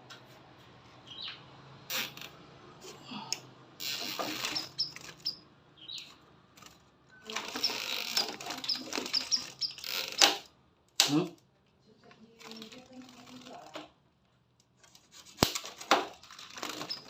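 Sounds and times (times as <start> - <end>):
bird chirping: 1.0 - 2.1, 3.8 - 6.2, 7.1 - 10.5, 16.5 - 17.0
rustling and fluttering: 6.0 - 10.4, 12.2 - 13.9, 14.8 - 17.0.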